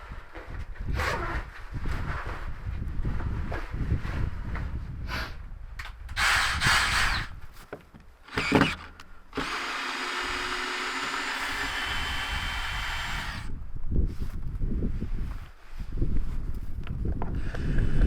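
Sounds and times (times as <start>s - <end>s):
small power tool running: 6.2s - 7.3s, 8.3s - 13.5s.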